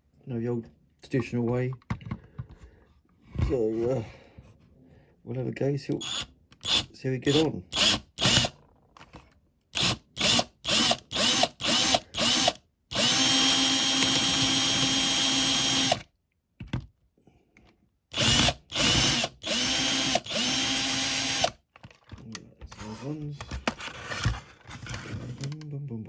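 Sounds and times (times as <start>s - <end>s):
electric drill whining: 6.0s - 8.5s, 9.8s - 16.1s, 18.1s - 21.6s.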